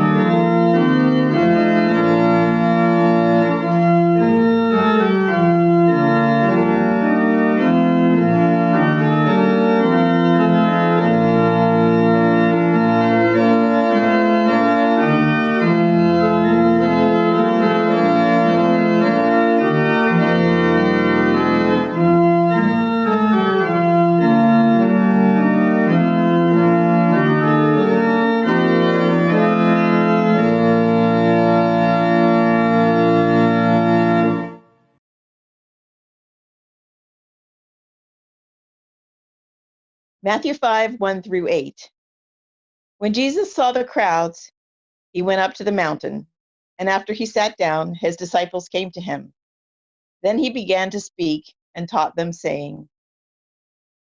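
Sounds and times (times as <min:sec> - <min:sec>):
organ playing sustained chords: 0:00.0 - 0:34.6.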